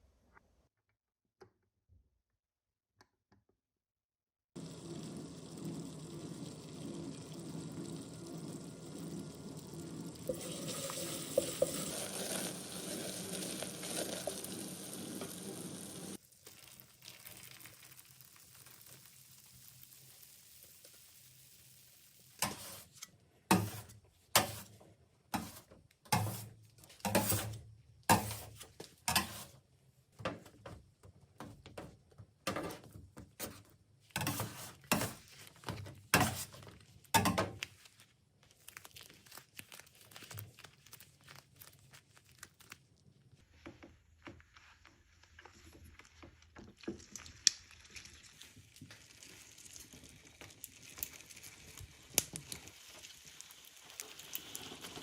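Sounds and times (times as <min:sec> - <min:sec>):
crinkling and rustling: 0:22.4 - 0:55.0.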